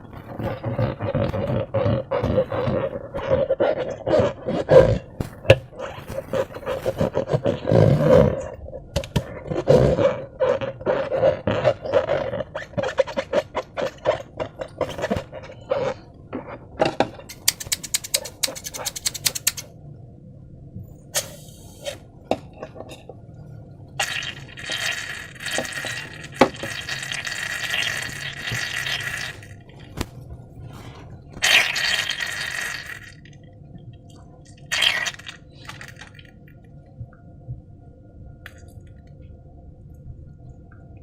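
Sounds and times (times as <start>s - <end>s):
containers clicking and clinking: 17.3s - 19.7s
liquid pouring: 24.0s - 30.0s, 31.4s - 33.3s, 34.6s - 36.4s.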